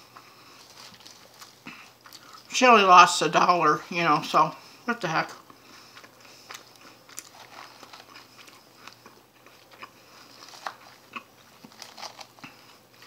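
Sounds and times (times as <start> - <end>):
chewing crunchy lettuce: 0.0 - 2.6, 5.4 - 13.0.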